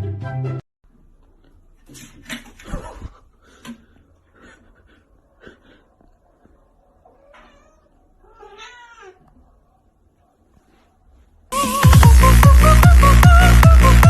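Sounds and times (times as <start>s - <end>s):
cat meowing: 7.0s - 9.4s.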